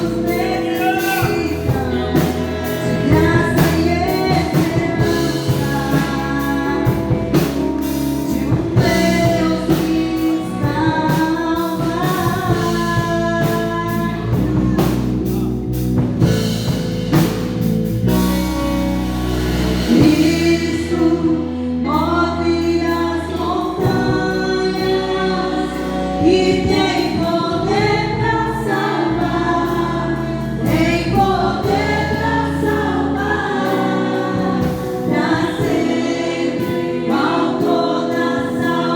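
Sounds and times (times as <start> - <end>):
voices singing together: 0.0 - 14.9, 22.3 - 38.9
band playing: 0.0 - 38.9.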